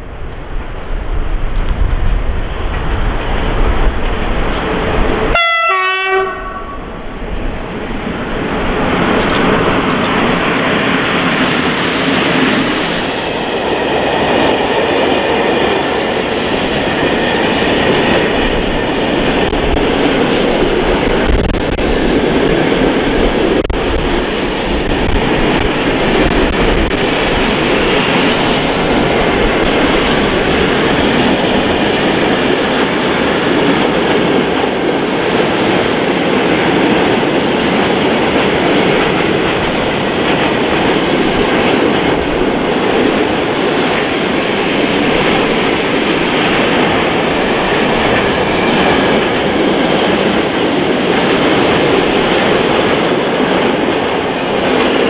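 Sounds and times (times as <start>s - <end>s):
locomotive horn blast: 5.3s - 6.9s
freight train wheels clattering: 7.6s - 55.0s.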